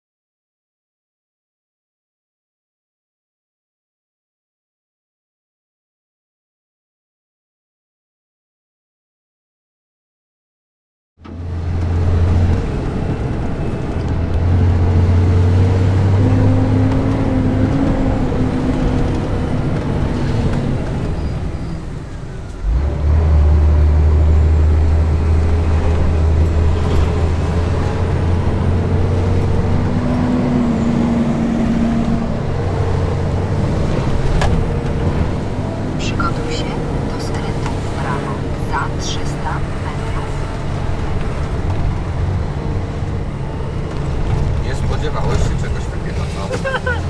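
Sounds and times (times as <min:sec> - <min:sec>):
truck diesel engine drone: 0:11.2 - 0:47.0.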